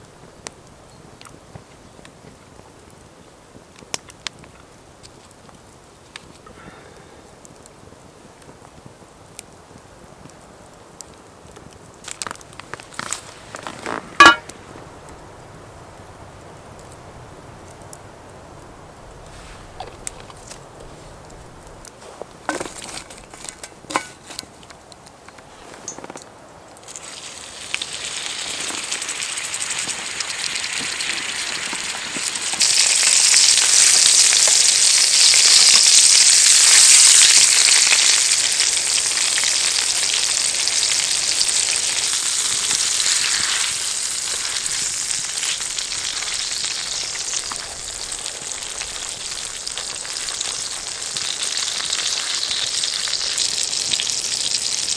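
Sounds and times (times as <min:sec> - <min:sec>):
food sizzling in a hot pan: 0:12.9 - 0:14.4, 0:26.9 - 0:54.9.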